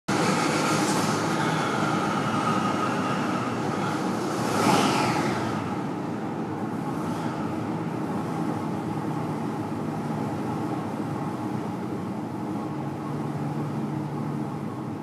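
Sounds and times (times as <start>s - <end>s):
engine revving on a dyno: 0.1s - 8.6s.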